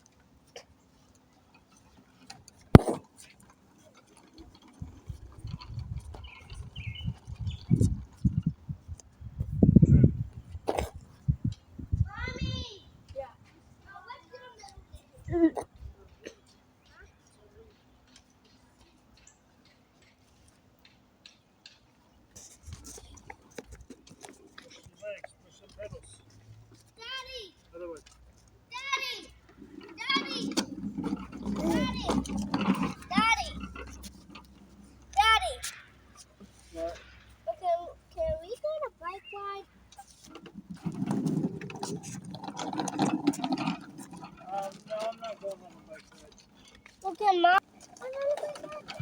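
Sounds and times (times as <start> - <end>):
bump and rustle: 0.0 - 20.8, 21.7 - 49.0
low irregular rumbling: 3.8 - 16.0, 28.7 - 49.0.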